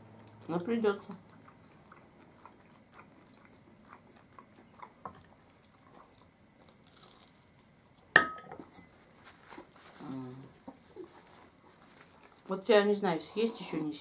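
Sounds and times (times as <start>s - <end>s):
people chewing: 0.0s - 8.1s, 9.1s - 12.5s
ceramic mug set on plate: 8.2s - 8.9s.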